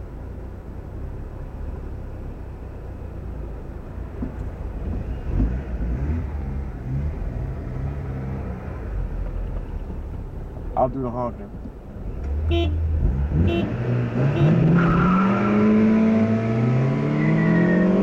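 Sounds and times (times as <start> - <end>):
car engine running: 0.0 - 13.6
road noise: 0.0 - 18.0.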